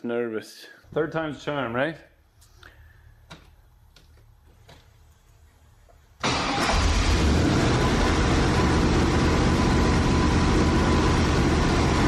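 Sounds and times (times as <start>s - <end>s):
car engine starting and running: 6.2s - 12.0s.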